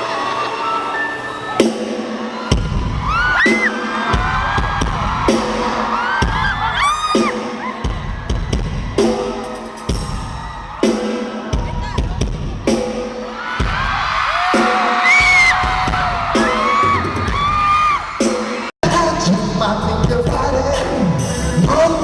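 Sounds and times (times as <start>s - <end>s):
crowd screaming: 0.0s - 18.7s
live concert music: 0.0s - 22.0s
heavy bass: 18.8s - 22.0s.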